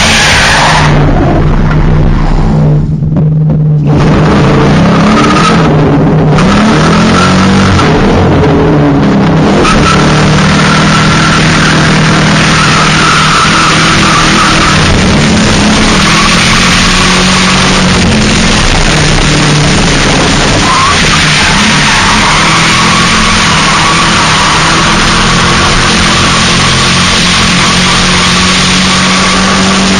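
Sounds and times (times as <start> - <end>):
car tyres squealing: 0.0 - 3.1, 3.7 - 8.2, 9.2 - 29.9
car engine at high revs: 0.0 - 29.9.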